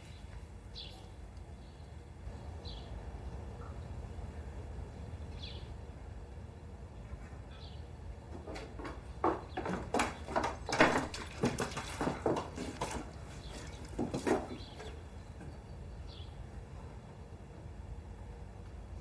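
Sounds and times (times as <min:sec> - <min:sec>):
sharp knocks and clatters: 0:08.3 - 0:15.6.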